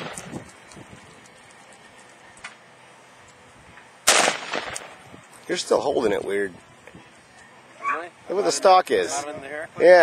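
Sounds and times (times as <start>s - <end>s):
rifle shot: 4.0s - 5.0s.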